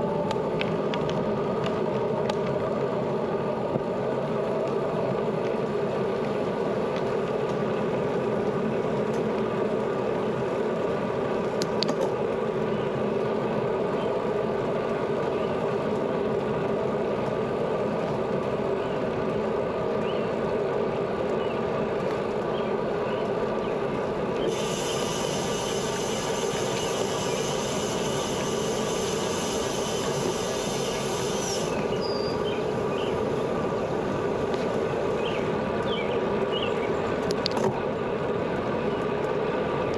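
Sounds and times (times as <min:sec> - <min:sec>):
bicycle tyre noise: 0:00.0 - 0:39.8
wind: 0:00.0 - 0:39.9
high buzz: 0:24.5 - 0:32.8.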